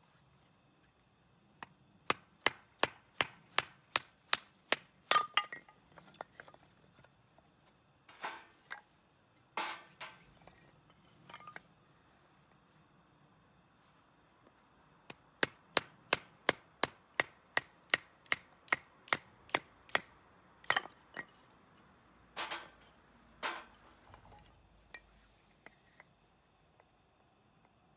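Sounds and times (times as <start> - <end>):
chopping wood: 2.1 - 5.5, 15.1 - 20.1.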